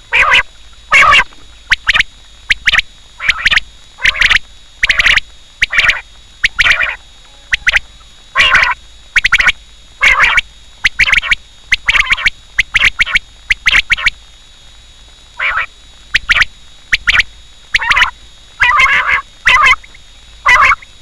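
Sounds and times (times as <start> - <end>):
quail calling: 0.1 - 1.2, 2.6 - 14.1, 15.4 - 17.2, 17.8 - 20.9.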